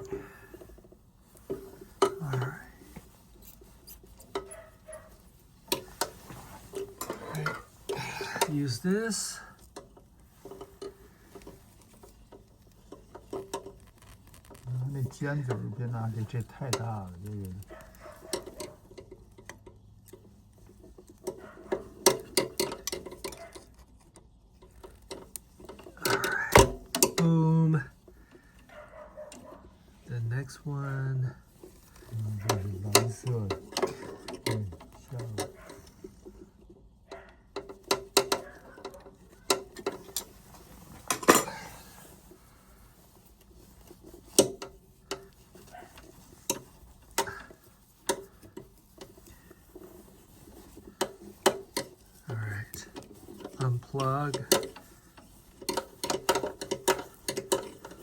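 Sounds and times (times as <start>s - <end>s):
pliers clicking and scraping metal: 31.6s - 42.5s, 43.1s - 58.0s.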